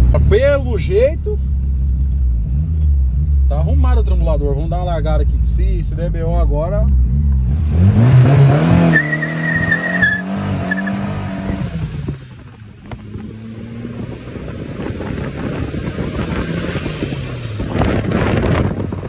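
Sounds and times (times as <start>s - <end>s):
turbocharged car engine accelerating: 0.0s - 19.0s
tire squeal: 8.8s - 12.2s.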